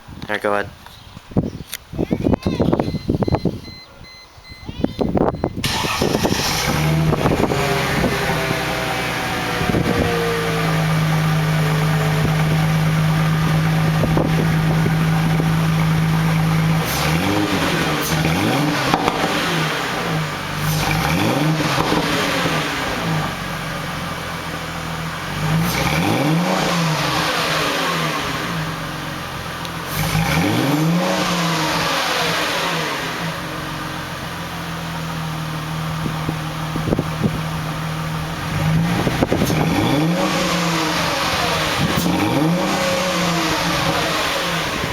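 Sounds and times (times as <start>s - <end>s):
car exhaust idling and revving: 5.0s - 44.9s.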